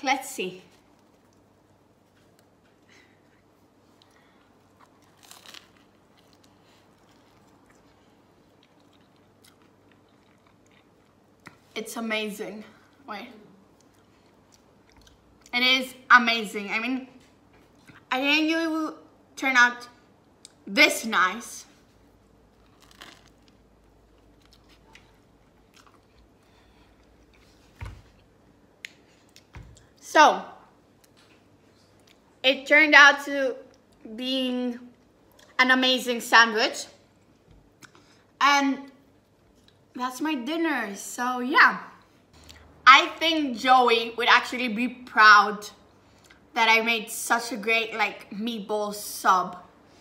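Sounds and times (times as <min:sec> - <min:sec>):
faint chewing: 0:00.7 - 0:11.8, 0:12.8 - 0:15.5, 0:22.5 - 0:30.0
bread roll crunching: 0:04.0 - 0:11.7, 0:21.8 - 0:28.3.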